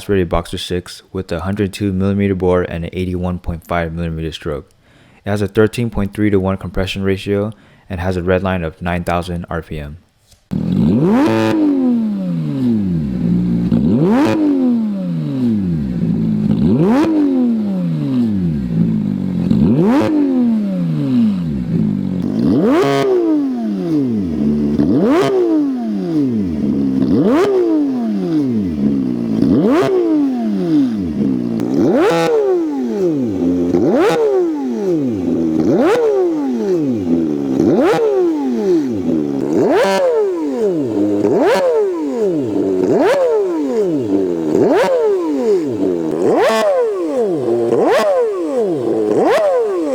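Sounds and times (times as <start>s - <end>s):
sports car exhaust revving: 10.5s - 49.9s.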